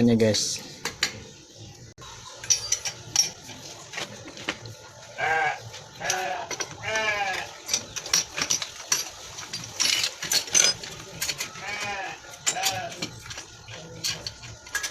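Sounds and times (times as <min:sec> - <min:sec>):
wavering bleats: 0:05.1 - 0:07.6, 0:11.5 - 0:13.0.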